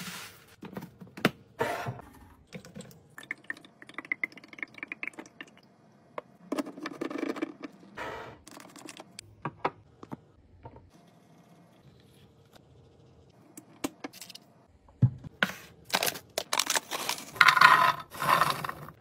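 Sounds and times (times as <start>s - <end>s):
packaging clicking and rattling: 15.9s - 17.6s
containers scraping: 15.9s - 19.0s.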